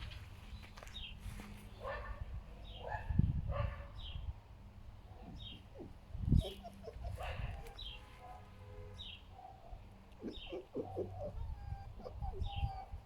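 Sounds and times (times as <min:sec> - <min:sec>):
foxes grunting: 0:10.2 - 0:11.8.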